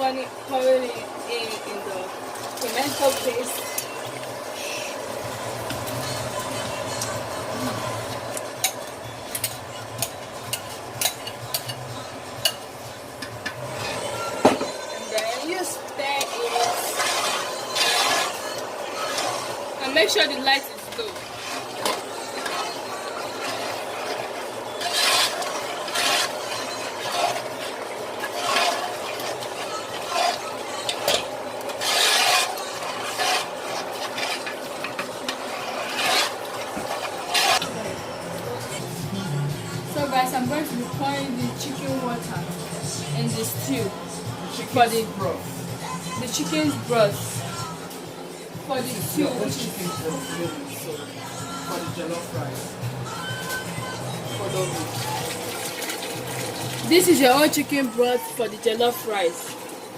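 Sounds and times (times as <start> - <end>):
spoon scraping a cooking pot: 13.2 - 37.7.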